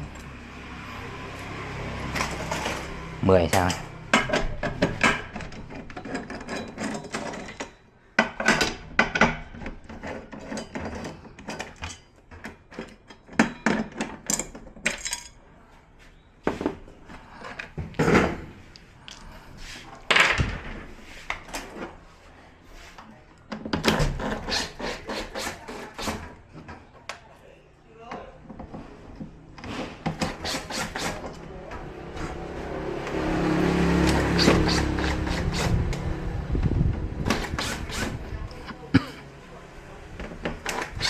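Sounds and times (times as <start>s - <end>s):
tools knocking and clattering: 3.5s - 15.4s.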